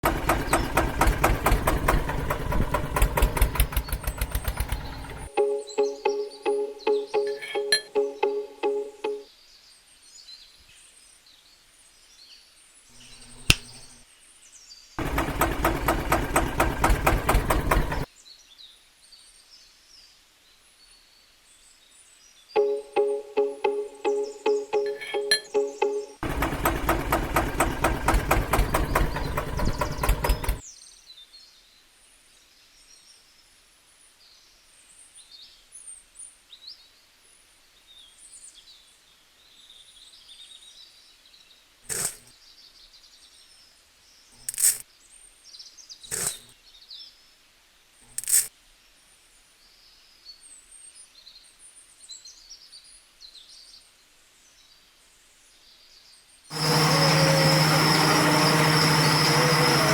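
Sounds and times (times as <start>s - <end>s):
loud steady machine sound: 0.0s - 5.3s, 15.0s - 18.1s, 26.2s - 30.6s, 56.5s - 59.9s
small birds chirping: 0.0s - 7.8s, 12.9s - 18.1s, 22.6s - 31.0s
music: 5.3s - 9.3s, 22.6s - 26.2s
sharp clicks or knocks: 13.4s - 13.9s.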